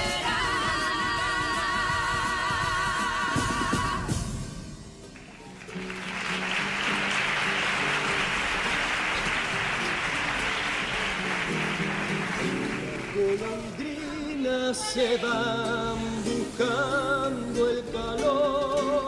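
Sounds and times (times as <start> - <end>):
choir singing with vibrato: 0.0 - 4.2, 13.2 - 19.0
audience applauding: 5.0 - 15.6.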